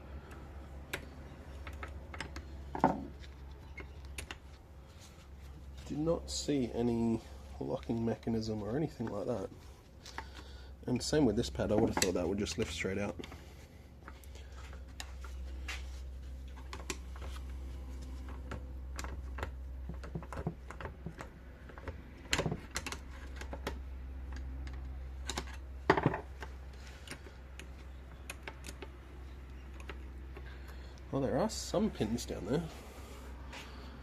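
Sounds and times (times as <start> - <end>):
steady low hum: 0.0 - 34.0
tools clicking on metal parts: 18.9 - 30.6.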